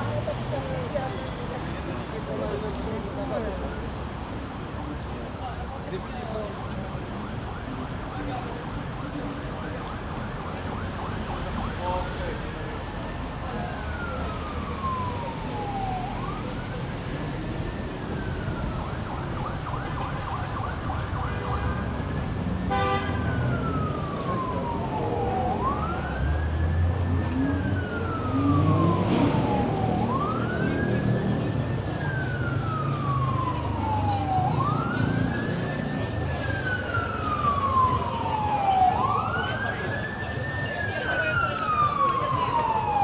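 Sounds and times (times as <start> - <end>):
street traffic: 0.0 - 43.0
emergency siren wailing: 0.3 - 43.0
horn blast: 22.7 - 23.4.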